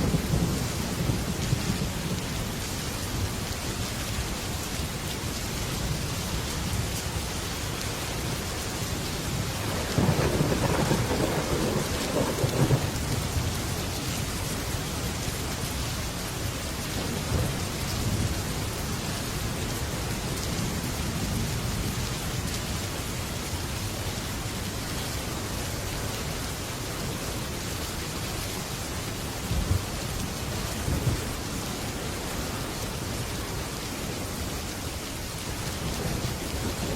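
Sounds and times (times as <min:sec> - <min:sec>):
thunder rumbling: 0:00.0 - 0:02.6, 0:09.4 - 0:13.7
heavy rain on a metal roof: 0:00.0 - 0:36.9.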